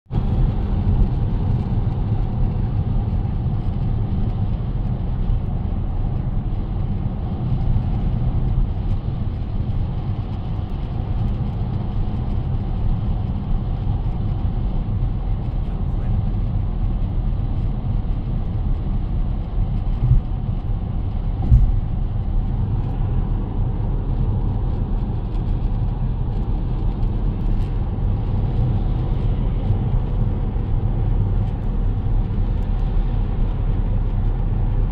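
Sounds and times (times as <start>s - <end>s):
car cabin road and engine noise: 0.1s - 34.9s.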